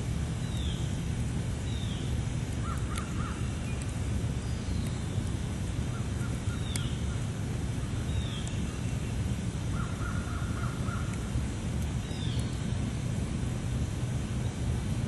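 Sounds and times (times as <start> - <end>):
steady low rumble: 0.0 - 15.0
birds calling: 1.6 - 11.3, 12.0 - 12.8
faint sharp ticks: 6.7 - 6.9, 8.4 - 8.6.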